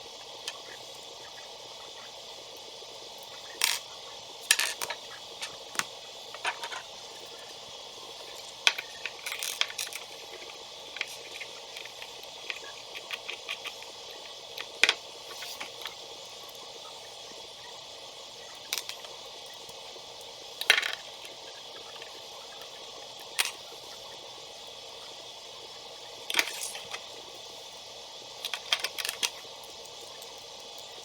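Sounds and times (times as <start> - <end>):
steady hiss: 0.0 - 31.0
plastic building bricks clicking: 3.6 - 3.8, 4.5 - 6.9, 8.6 - 16.0, 20.6 - 21.1, 28.4 - 29.4.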